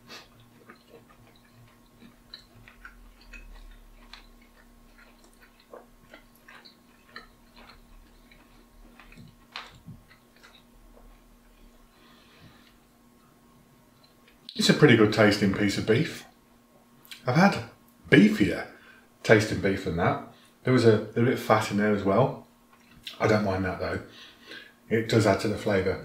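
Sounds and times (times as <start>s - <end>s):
man chewing with wet smacks: 0.0s - 14.6s, 22.7s - 23.2s.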